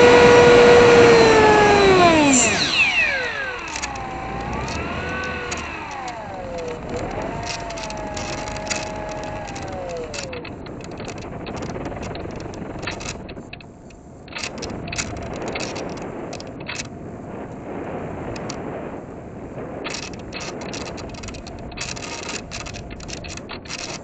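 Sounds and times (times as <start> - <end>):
electric motor whine: 0.0 - 13.6, 14.3 - 16.9, 19.9 - 24.0
scattered clicks: 0.0 - 17.0, 18.3 - 18.7, 19.8 - 24.0
rushing noise: 0.0 - 23.9.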